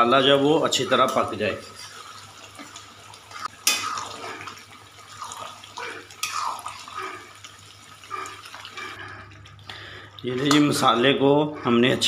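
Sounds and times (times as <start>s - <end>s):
gravy bubbling and sizzling: 0.0s - 11.7s
low steady hum: 0.0s - 12.0s
spoon scraping a pan: 10.3s - 11.8s.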